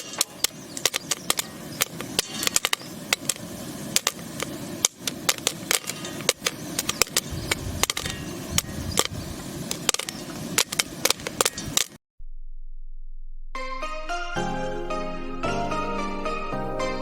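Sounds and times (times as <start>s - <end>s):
popcorn popping: 0.0s - 12.0s
steady hiss: 0.0s - 12.0s.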